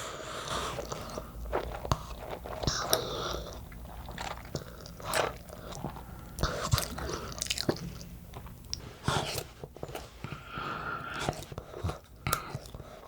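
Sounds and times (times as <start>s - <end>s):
person chewing noodles: 0.3s - 10.0s.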